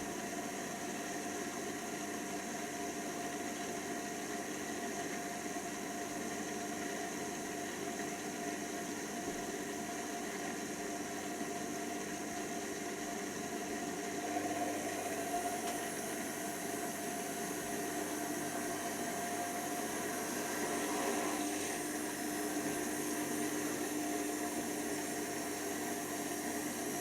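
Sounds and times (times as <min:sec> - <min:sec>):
washer dryer motor humming: 0:00.0 - 0:27.0.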